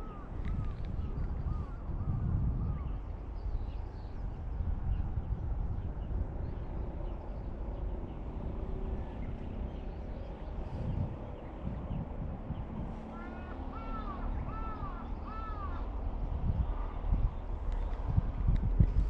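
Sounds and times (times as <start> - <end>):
wind: 0.0 - 19.0
crow cawing: 13.1 - 15.9.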